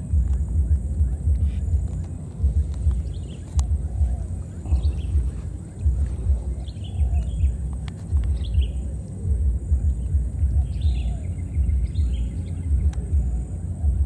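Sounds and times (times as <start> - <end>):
birds chirping: 0.0 - 14.0
low uneven rumble: 0.0 - 14.0.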